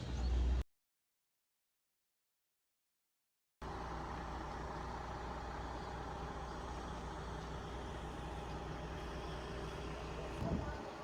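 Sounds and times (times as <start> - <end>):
constant low hum: 3.6 - 11.0.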